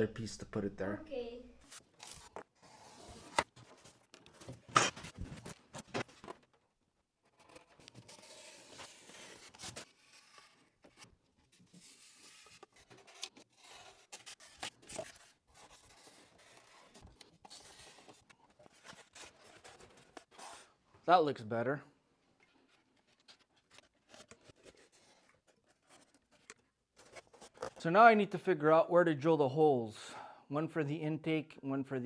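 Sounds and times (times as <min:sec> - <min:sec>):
scratchy scraping and rustling: 0:07.2 - 0:20.7, 0:22.5 - 0:27.8.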